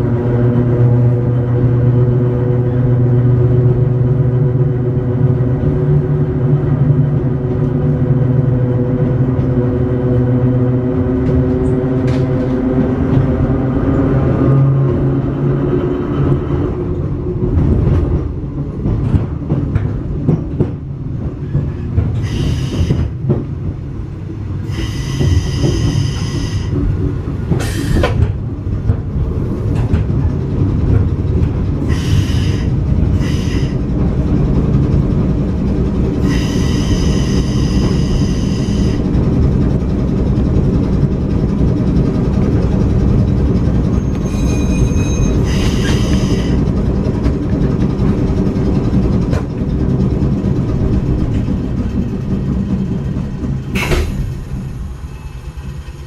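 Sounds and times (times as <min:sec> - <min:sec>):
train wheels rumbling and clicking: 0:00.0 - 0:56.0
high-pitched wheel squeals: 0:43.9 - 0:46.6.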